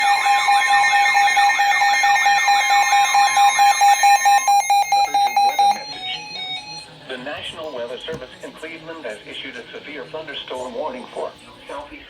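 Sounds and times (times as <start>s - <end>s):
rapid electronic beeping: 0.0s - 7.0s
warbling alarm siren: 0.0s - 7.0s.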